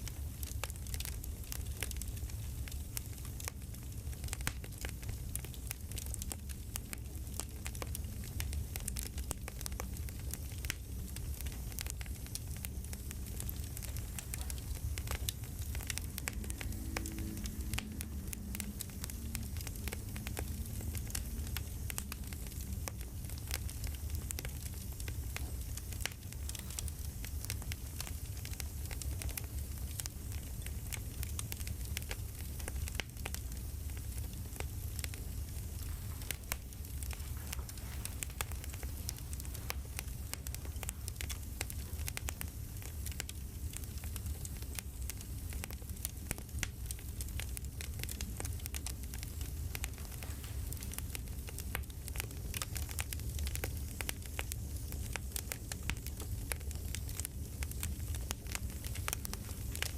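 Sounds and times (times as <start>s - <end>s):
campfire crackling and popping: 0.0s - 59.9s
low rumble of burning wood: 0.0s - 59.9s.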